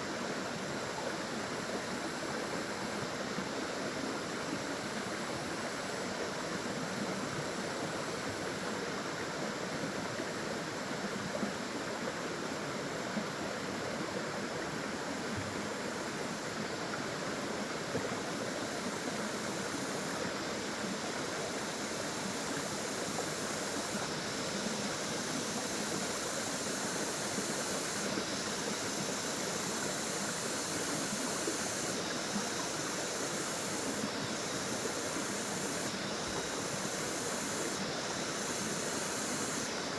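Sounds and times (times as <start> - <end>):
water flowing and splashing: 12.7 - 39.9.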